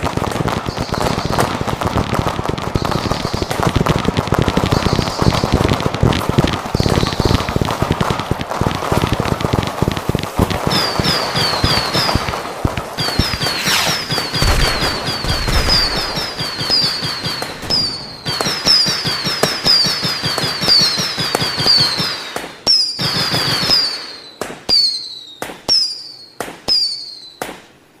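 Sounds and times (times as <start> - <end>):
firecrackers going off: 0.0 - 27.7
high falling tone: 13.3 - 16.9.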